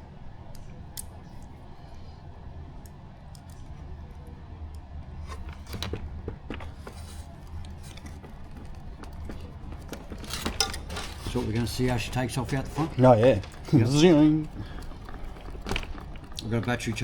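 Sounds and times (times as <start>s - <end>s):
small plastic parts clicking: 2.8s - 4.3s.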